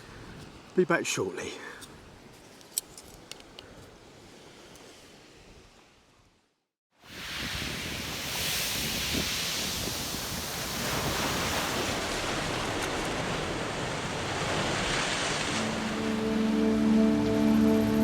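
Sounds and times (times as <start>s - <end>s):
waves on shingle beach: 7.0s - 18.0s
music: 15.6s - 18.0s.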